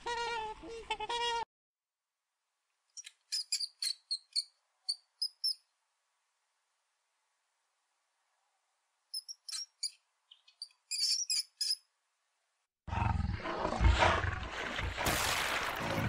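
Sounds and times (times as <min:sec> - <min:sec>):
rodent squeaking: 0:03.0 - 0:05.6, 0:09.1 - 0:11.9
crocodile growling: 0:12.9 - 0:14.8.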